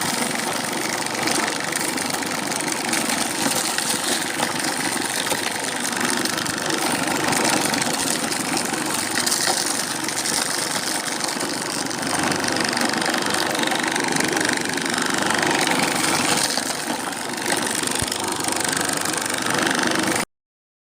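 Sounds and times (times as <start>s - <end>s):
grinding mill engine running: 0.0s - 20.3s.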